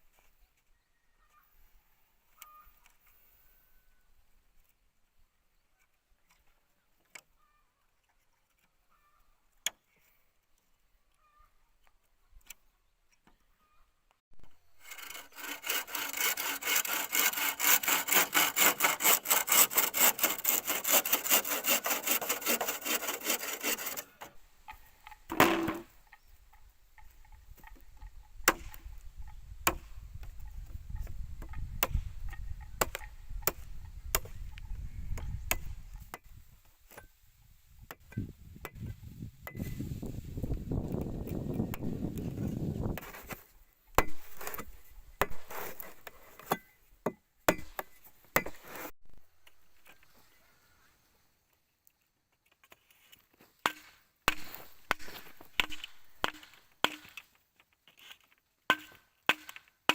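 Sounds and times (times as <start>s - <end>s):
hand saw cutting: 14.6s - 24.4s, 41.7s - 46.6s, 47.5s - 48.9s, 53.7s - 57.2s.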